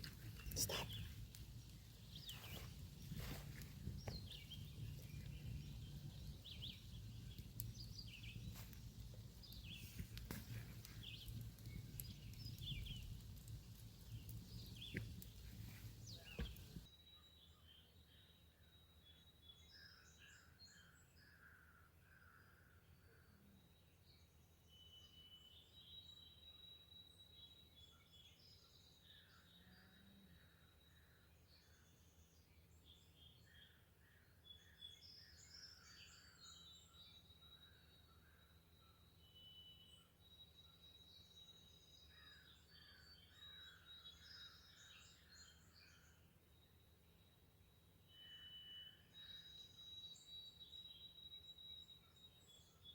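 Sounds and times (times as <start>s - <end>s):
wind rumble on microphone: 0.0s - 16.8s
birds chirping: 0.0s - 16.9s
small birds chirping: 0.0s - 18.4s, 22.9s - 52.9s.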